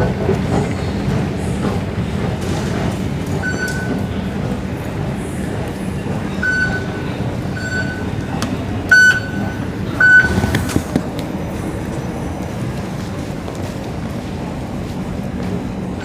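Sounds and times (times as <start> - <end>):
train and station rumble: 0.0 - 16.0
door-closing warning beeps: 3.4 - 4.0, 6.4 - 8.2, 8.9 - 10.7.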